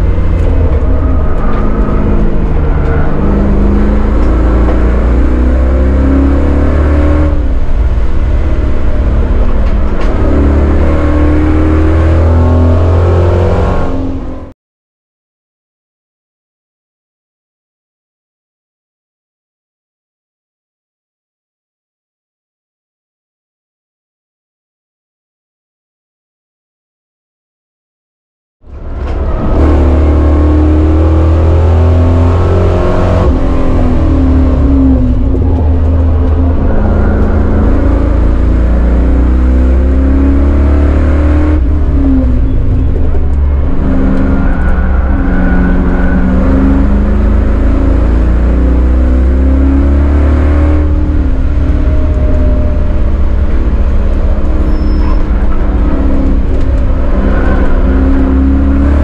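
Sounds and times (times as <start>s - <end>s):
car engine rumble from inside cabin: 0.0s - 13.4s, 28.7s - 59.0s.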